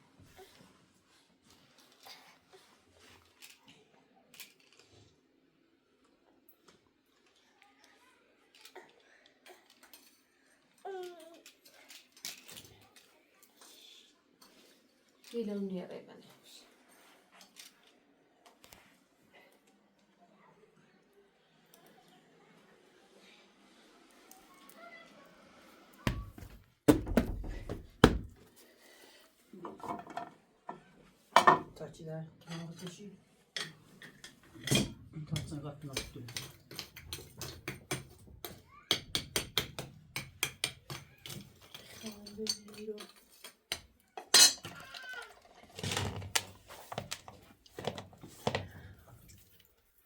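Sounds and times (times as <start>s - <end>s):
heavy thuds: 26.1s - 28.4s
metal dishes clattering: 29.7s - 30.4s, 31.4s - 31.8s, 33.6s - 38.2s, 40.2s - 46.2s.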